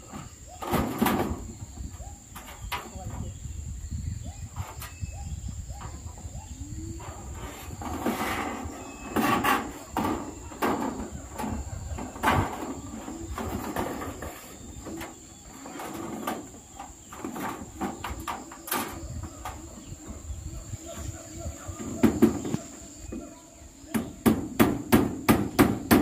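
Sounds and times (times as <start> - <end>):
knocks on metal roofing sheets: 0.6 - 1.5, 7.8 - 19.6, 21.8 - 22.6, 23.9 - 26.0
sharp hits on metal sheets: 23.9 - 26.0.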